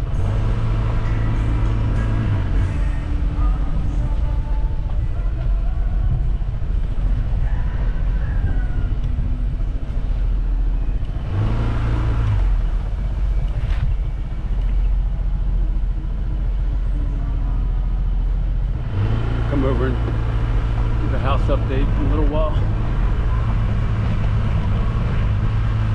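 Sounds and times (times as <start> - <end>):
vehicle rumbling along road: 0.0 - 25.9.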